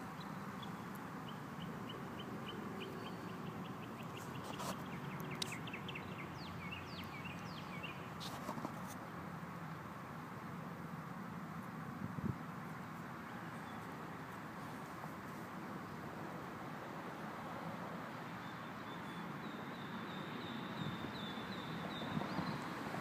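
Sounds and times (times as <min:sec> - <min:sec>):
outdoor background noise: 0:00.0 - 0:23.0
bird singing: 0:00.2 - 0:08.1, 0:18.4 - 0:22.6.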